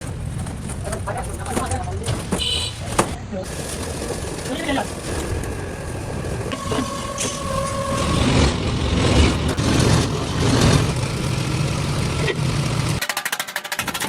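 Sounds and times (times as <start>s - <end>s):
workshop machinery droning: 3.5s - 13.0s
thin steady whine: 6.5s - 9.4s.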